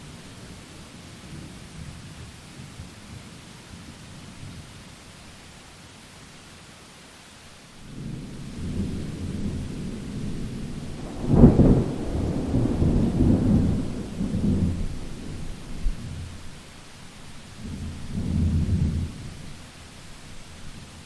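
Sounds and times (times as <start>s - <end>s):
steady rain: 0.0s - 21.0s
thunder rumbling: 8.0s - 16.9s
loud thunder crack: 8.6s - 16.5s.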